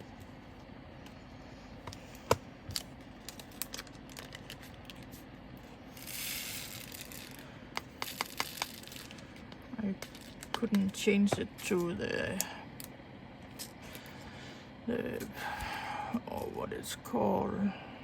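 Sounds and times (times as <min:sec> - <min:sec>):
plastic bag rustling: 0:02.8 - 0:05.3, 0:08.1 - 0:10.6.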